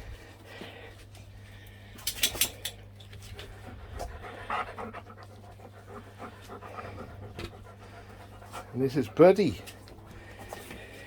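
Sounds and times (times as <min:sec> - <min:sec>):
dog panting: 0:03.2 - 0:11.0.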